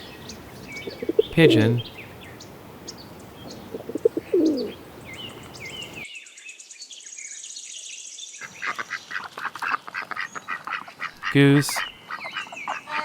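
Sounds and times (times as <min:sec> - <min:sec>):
bird chirps: 0:00.0 - 0:09.1
pigeon cooing: 0:00.8 - 0:01.8, 0:03.6 - 0:04.8.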